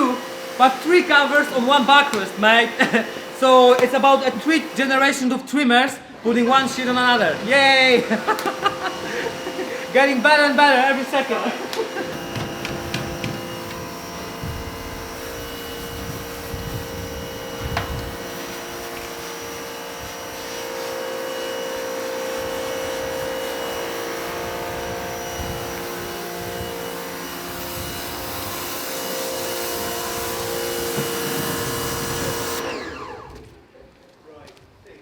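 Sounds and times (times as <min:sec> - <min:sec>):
small electric motor whining: 0:06.1 - 0:33.6.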